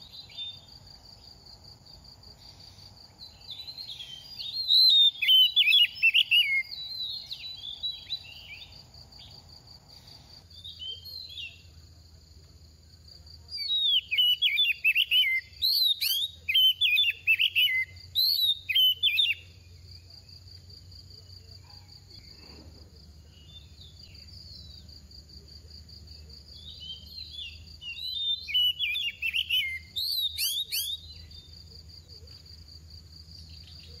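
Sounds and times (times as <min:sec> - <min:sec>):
magpie-robin singing: 0:03.2 - 0:08.7, 0:13.6 - 0:19.8, 0:26.6 - 0:31.5.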